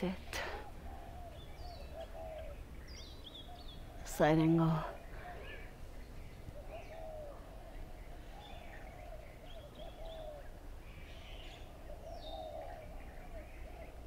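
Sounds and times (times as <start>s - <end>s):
birds chirping and calling: 0.0s - 14.0s
low outdoor rumble: 0.0s - 14.0s.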